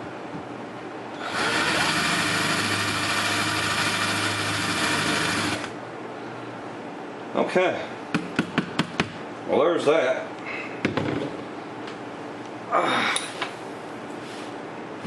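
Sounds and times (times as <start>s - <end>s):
electric drill drilling metal: 1.2s - 5.7s.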